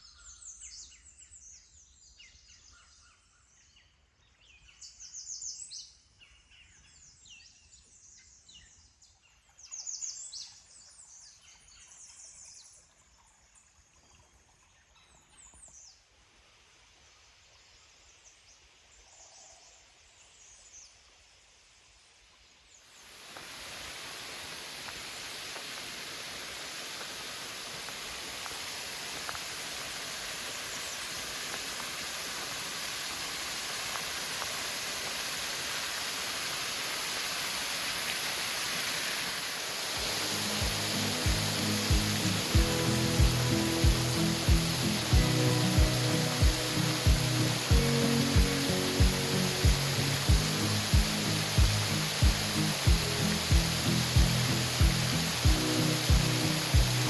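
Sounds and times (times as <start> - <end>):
waterfall rushing: 23.1 - 57.0
songbirds chirping and trilling: 40.0 - 57.0.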